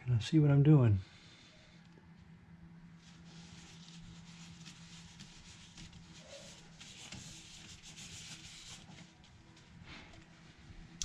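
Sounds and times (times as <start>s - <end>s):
low steady hum: 0.0s - 11.0s
gloved hands rubbing bottle: 3.0s - 9.2s.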